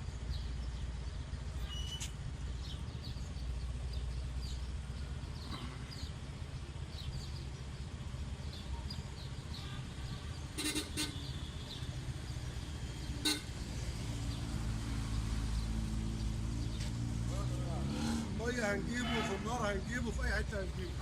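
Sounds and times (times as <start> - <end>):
road traffic hum: 0.0 - 21.0
faint bird chirps: 1.5 - 2.8
car horn toots: 9.6 - 11.4, 13.2 - 13.5, 19.0 - 19.5.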